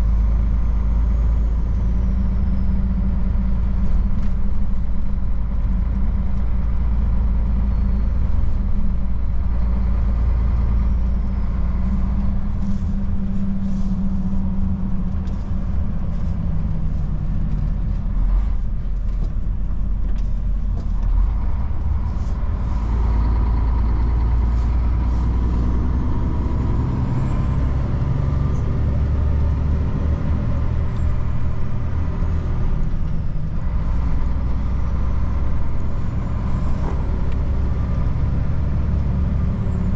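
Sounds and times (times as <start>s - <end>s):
truck diesel engine rumbling: 0.0s - 39.9s.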